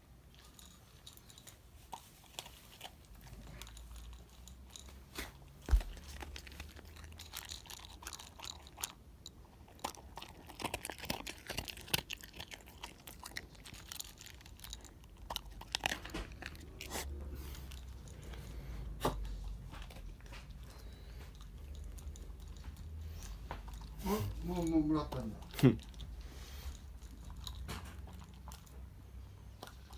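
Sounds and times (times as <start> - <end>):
dog crunching and chewing food: 0.0 - 29.9.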